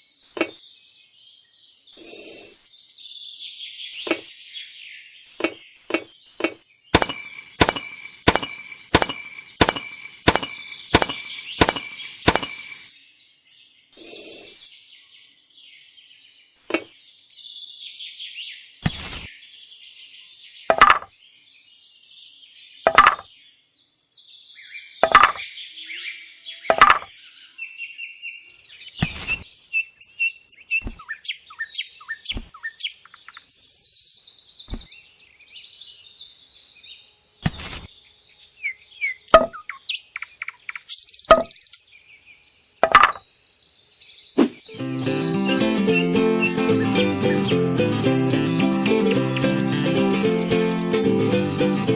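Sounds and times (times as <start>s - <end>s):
birds chirping: 1.9s - 2.8s, 3.7s - 12.9s, 28.5s - 51.9s.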